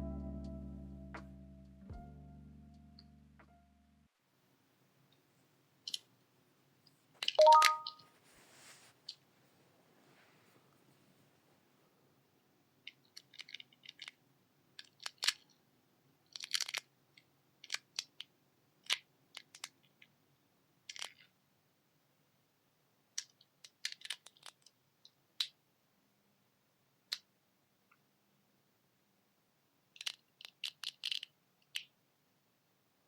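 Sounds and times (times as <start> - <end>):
hard plastic parts clicking: 30.0 - 31.9.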